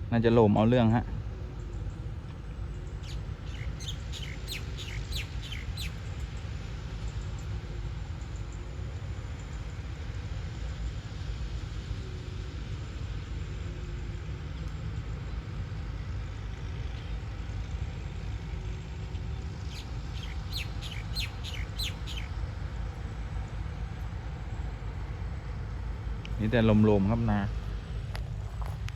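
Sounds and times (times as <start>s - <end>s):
bird chirping: 3.0s - 6.0s, 19.6s - 22.4s
combine harvester rumbling: 16.0s - 28.9s.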